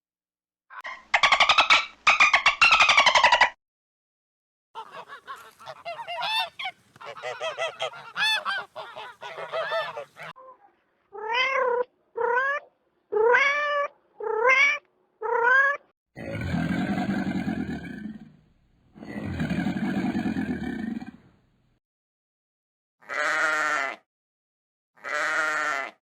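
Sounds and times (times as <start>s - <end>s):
drawn-out rising and falling calls: 0.9s - 3.6s, 4.8s - 10.4s, 16.4s - 18.4s, 19.0s - 21.3s.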